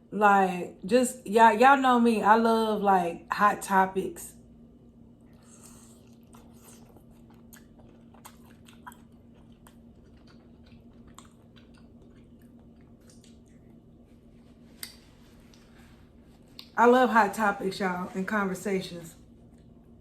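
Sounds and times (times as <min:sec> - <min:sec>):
faint steady hum: 0:00.0 - 0:20.0
person chewing: 0:05.2 - 0:16.8.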